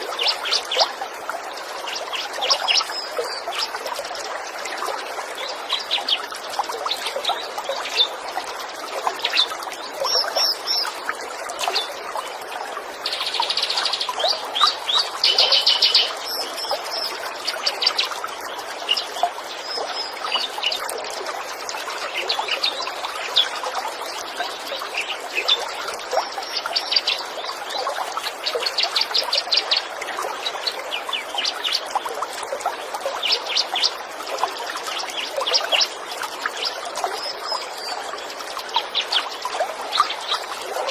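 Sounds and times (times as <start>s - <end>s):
stream trickling over stones: 0.0s - 40.9s
songbirds chirping: 4.4s - 20.9s.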